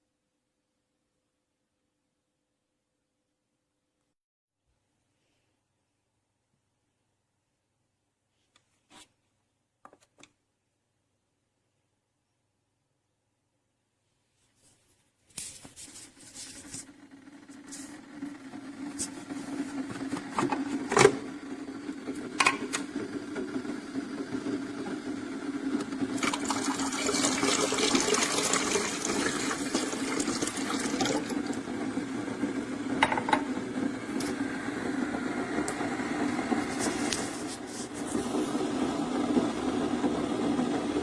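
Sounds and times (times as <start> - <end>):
coffee maker pump hum: 15.6 - 41.0.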